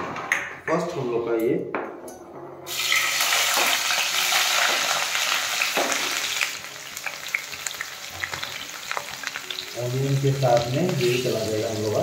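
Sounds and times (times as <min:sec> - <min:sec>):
onion sizzling in hot oil: 0:02.7 - 0:12.0.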